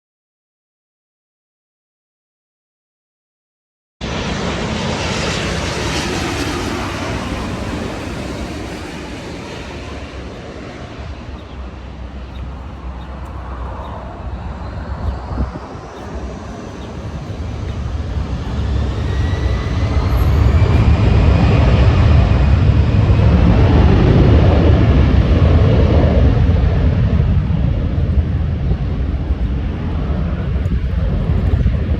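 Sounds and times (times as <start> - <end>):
high whine sliding in pitch: 4.0 - 24.9
jet engines running: 4.0 - 31.9.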